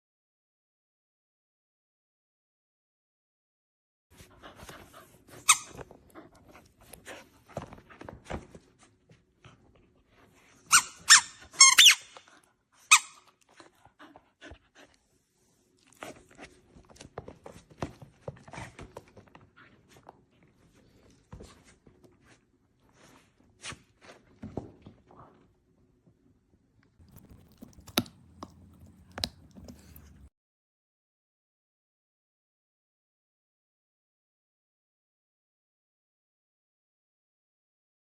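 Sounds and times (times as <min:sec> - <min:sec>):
squeaky toy squeaks: 0:05.4 - 0:05.8, 0:10.7 - 0:12.2, 0:12.9 - 0:13.3
teeth clicking and crunching on toy: 0:27.0 - 0:30.3.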